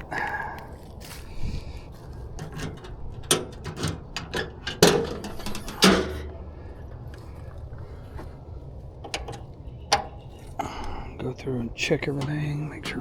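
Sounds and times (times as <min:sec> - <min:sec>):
sharp clicks and knocks: 0:02.4 - 0:06.5, 0:09.0 - 0:11.0, 0:12.0 - 0:13.0.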